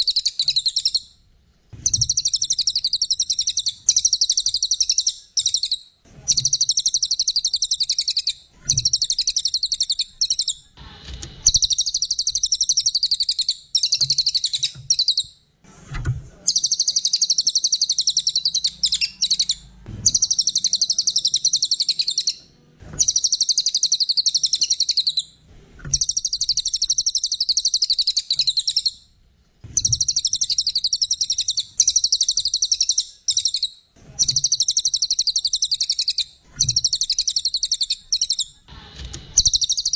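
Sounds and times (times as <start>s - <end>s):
songbird chattering trills: 16.5s - 22.4s.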